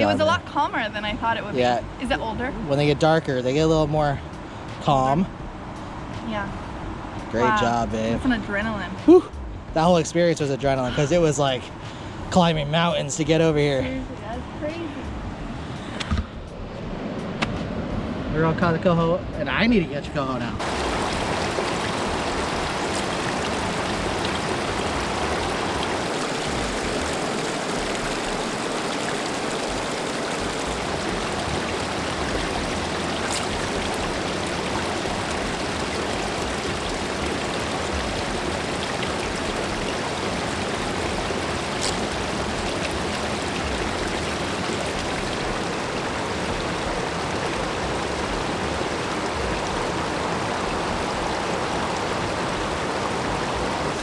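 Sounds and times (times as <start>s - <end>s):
river water flowing over rocks: 20.6s - 54.0s.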